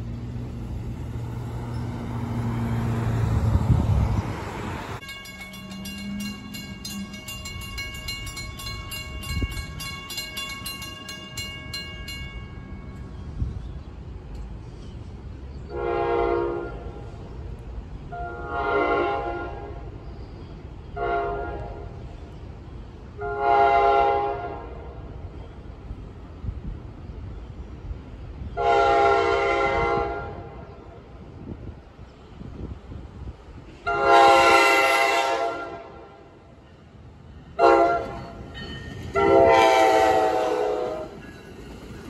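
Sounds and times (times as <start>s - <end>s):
railroad crossing bell ringing: 5.0s - 13.4s, 36.5s - 42.0s
train horn blasts: 15.7s - 17.1s, 18.1s - 20.0s, 21.0s - 22.0s, 23.2s - 25.0s, 28.6s - 30.8s, 33.8s - 36.4s, 37.6s - 38.4s, 39.1s - 41.2s.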